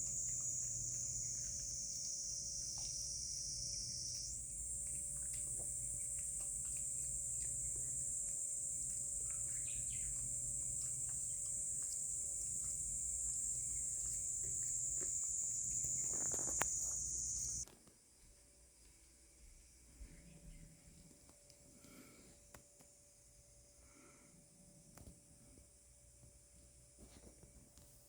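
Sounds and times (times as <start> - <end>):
insects chorus: 0.0 - 17.6
faint clicks: 4.0 - 17.6.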